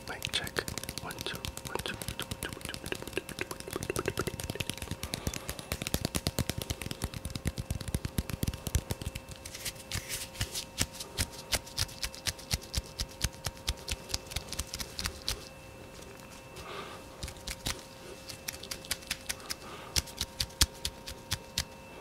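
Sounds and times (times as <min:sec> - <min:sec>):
faint steady hum: 0:00.0 - 0:22.0
fast soft tapping: 0:00.2 - 0:09.4.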